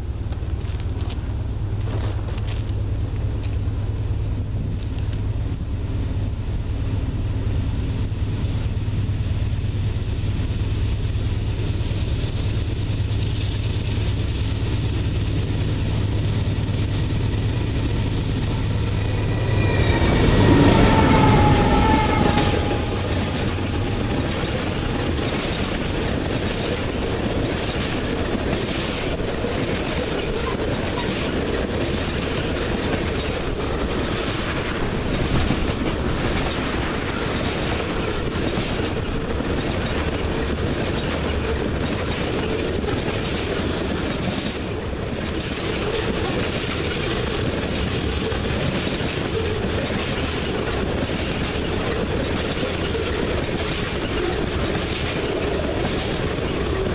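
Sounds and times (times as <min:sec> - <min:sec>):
freight train cars rolling: 0:00.0 - 0:56.9
train horn: 0:18.9 - 0:23.6.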